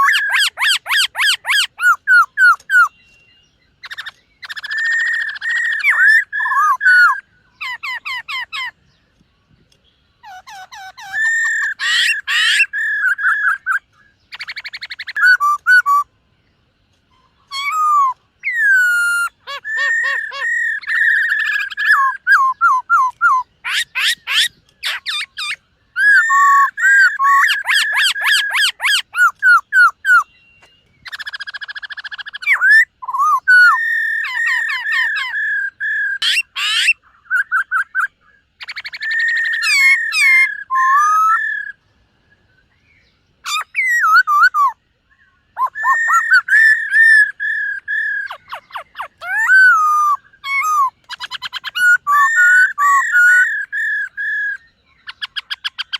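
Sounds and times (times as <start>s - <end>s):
laughingthrush singing: 0.0s - 2.9s, 10.2s - 16.1s, 17.4s - 30.3s, 31.1s - 41.7s, 45.5s - 55.9s.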